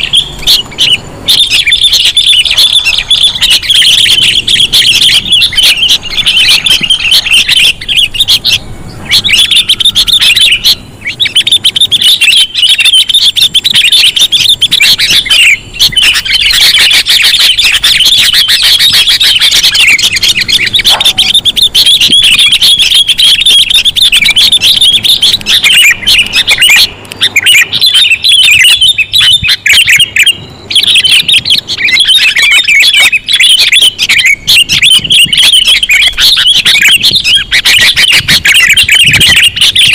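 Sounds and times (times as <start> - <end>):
bulbul bird calls chattering: 0.0 - 39.9.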